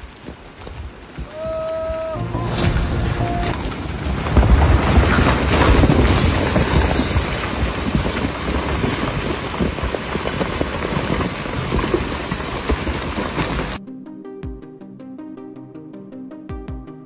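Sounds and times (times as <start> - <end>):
strong wind buffeting microphone: 0.8 - 13.8.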